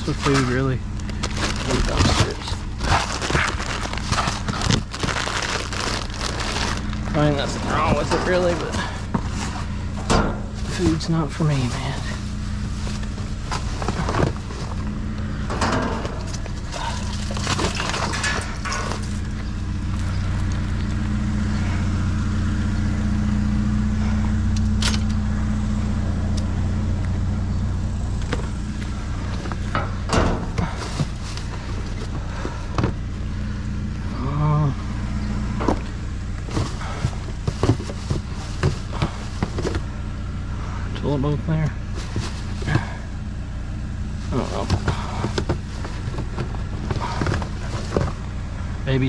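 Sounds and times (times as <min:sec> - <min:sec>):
items being handled: 0:00.0 - 0:20.9, 0:28.2 - 0:33.5, 0:35.6 - 0:40.0, 0:41.8 - 0:43.2, 0:44.0 - 0:48.3
vehicle engine humming: 0:00.0 - 0:49.0.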